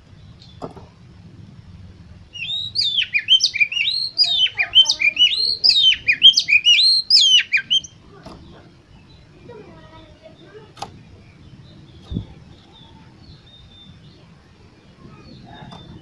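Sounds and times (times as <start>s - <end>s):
bird singing whistled notes: 2.3s - 8.0s, 10.3s - 16.0s.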